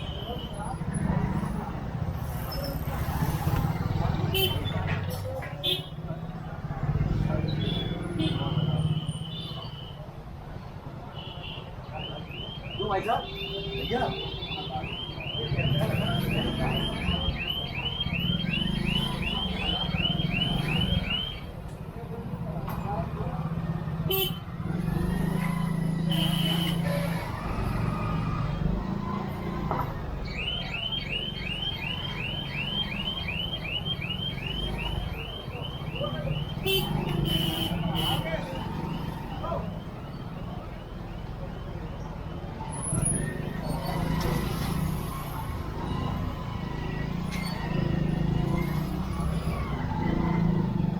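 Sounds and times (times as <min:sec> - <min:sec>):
street traffic engines: 0:00.0 - 0:50.9
vehicle alarm chirping: 0:07.4 - 0:10.0, 0:11.2 - 0:21.6, 0:24.1 - 0:50.9.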